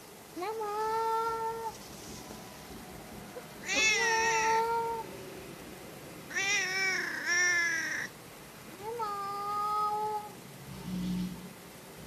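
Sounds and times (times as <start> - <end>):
cat meowing: 3.6 - 5.1, 6.3 - 8.1, 8.8 - 10.4.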